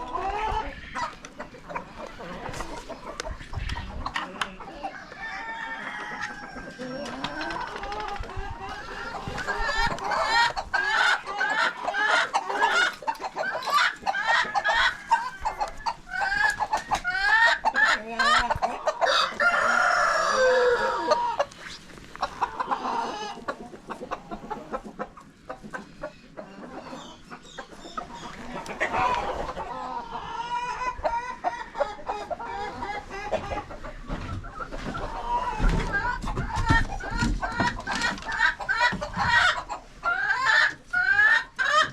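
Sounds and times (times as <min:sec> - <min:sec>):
chickens clucking: 0:00.0 - 0:41.9
rooster crowing: 0:04.9 - 0:06.7, 0:19.0 - 0:21.3.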